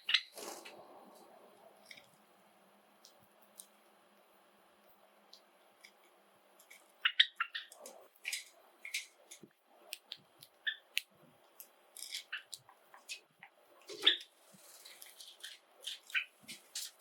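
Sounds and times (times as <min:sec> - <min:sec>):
sparrows chirping and clicking: 0:00.0 - 0:00.9, 0:05.3 - 0:17.0.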